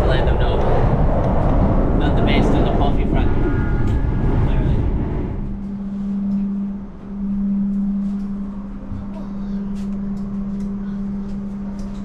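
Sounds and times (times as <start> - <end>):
train machinery humming: 0.0 - 12.0.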